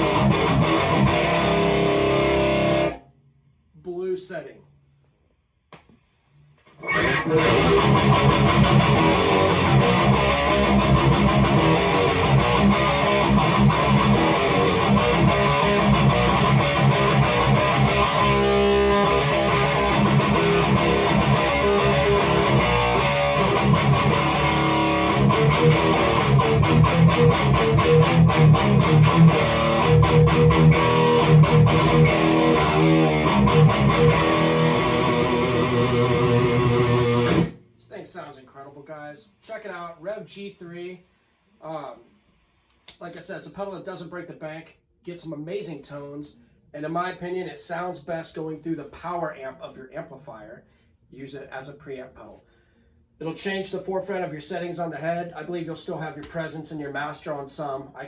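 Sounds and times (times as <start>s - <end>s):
distorted electric guitar riffing: 0.0s - 3.0s, 6.8s - 37.6s.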